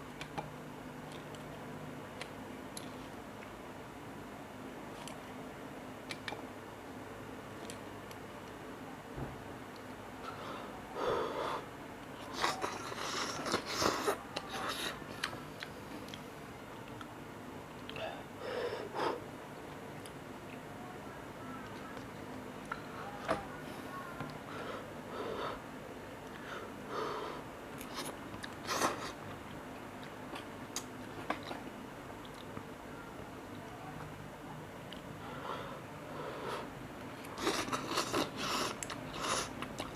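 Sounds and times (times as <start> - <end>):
wet mouth clicks: 6.1 - 6.4
person breathing: 10.2 - 11.7, 18.0 - 19.2, 22.9 - 25.7, 26.3 - 27.5, 35.2 - 36.7
person chewing noodles: 12.2 - 17.1, 27.8 - 32.6, 37.2 - 39.9.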